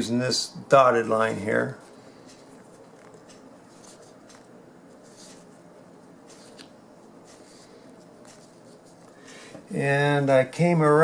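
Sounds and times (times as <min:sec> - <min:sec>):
scratching and rustling of vinyl: 0:01.2 - 0:09.2
pencil marking: 0:07.2 - 0:09.0.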